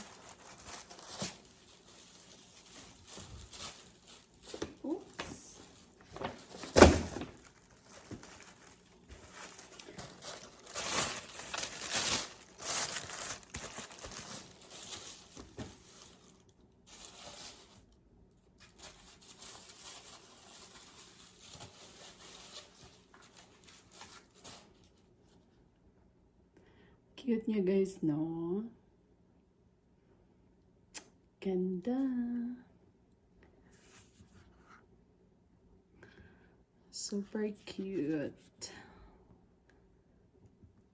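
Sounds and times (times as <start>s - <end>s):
packaging crinkling and rustling: 0.0s - 25.1s.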